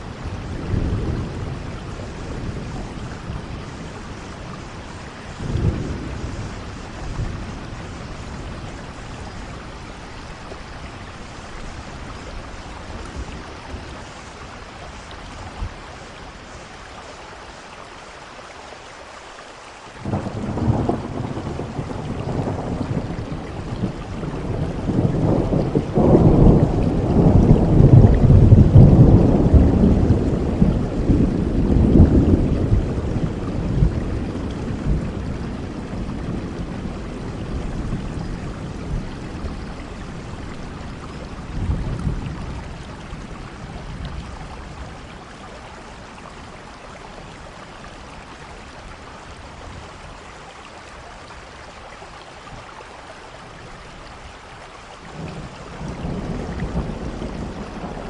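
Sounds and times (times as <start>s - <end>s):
steady rain falling: 0.0s - 58.0s
thunder rolling: 20.0s - 45.2s, 55.2s - 58.0s.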